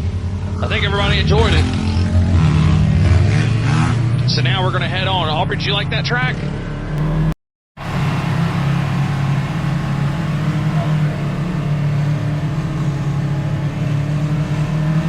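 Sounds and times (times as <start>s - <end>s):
utility vehicle engine running: 7.0s - 15.0s.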